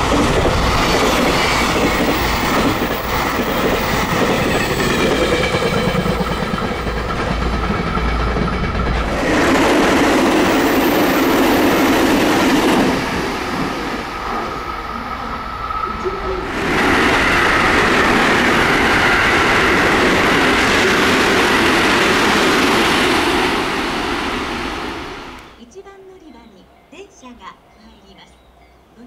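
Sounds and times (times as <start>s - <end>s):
express train rushing past: 0.0s - 29.0s.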